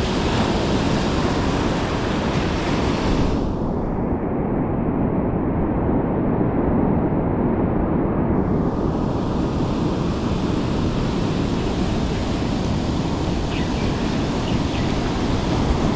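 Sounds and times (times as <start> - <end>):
surf rushing: 0.0 - 4.0, 8.4 - 15.9
wind buffeting microphone: 0.0 - 15.9.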